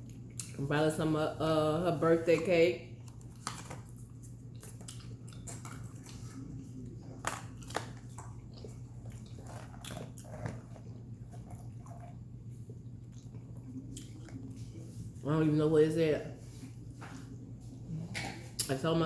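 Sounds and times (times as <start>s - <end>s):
chewing smacks: 0.0s - 0.6s, 2.4s - 15.1s
steady low hum: 0.0s - 19.0s.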